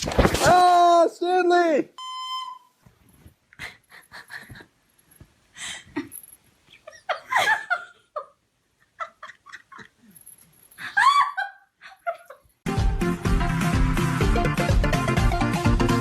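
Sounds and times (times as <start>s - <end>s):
person laughing and giggling: 3.6s - 4.8s, 5.6s - 12.6s
music: 12.7s - 16.0s.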